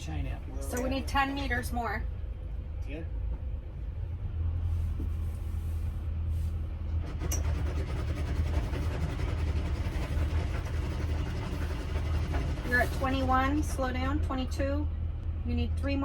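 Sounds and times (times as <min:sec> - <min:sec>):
boat engine running: 0:04.4 - 0:16.0.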